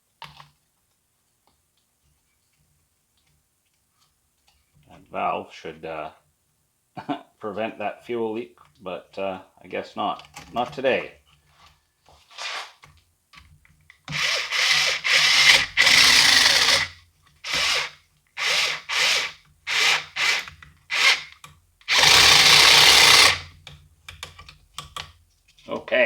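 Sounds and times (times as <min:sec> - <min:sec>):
cordless drill running in bursts: 0:14.1 - 0:21.3, 0:21.9 - 0:23.5.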